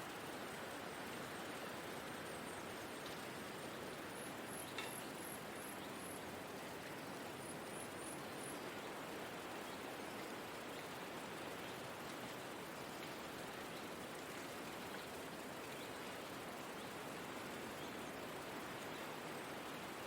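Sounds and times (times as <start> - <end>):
soft rushing of wind or rain: 0.0 - 20.0
small click: 4.7 - 5.0.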